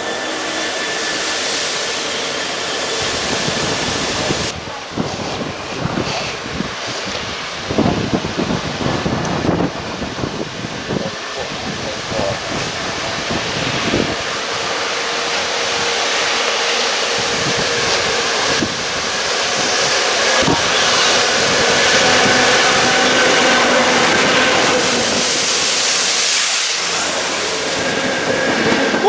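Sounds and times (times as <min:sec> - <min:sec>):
train passing on rails: 0:00.0 - 0:29.0.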